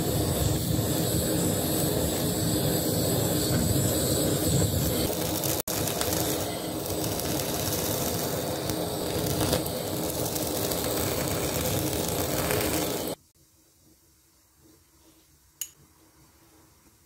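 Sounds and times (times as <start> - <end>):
blowtorch hissing: 0.0 - 13.2.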